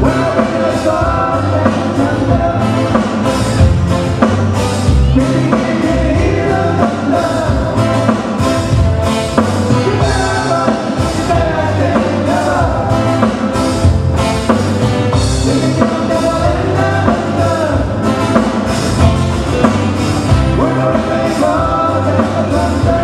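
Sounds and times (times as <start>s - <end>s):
person singing: 0.0s - 3.3s, 5.1s - 8.1s, 9.7s - 13.5s, 15.3s - 18.2s, 20.4s - 23.0s
band playing a song: 0.0s - 23.0s.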